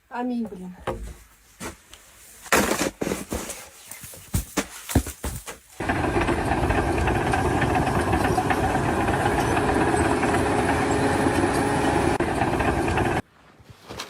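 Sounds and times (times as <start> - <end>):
engine running steadily: 5.8 - 13.2.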